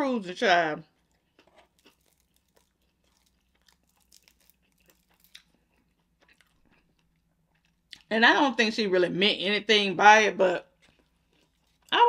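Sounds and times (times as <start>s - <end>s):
crispy chicken crunching: 0.9s - 8.1s, 10.7s - 12.0s.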